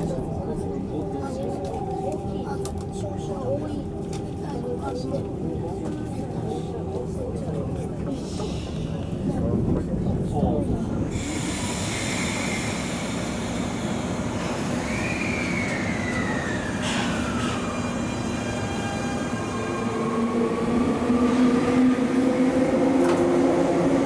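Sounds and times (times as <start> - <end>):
electric train pulling away: 11.1 - 24.0
high squeal sliding down: 14.8 - 19.4.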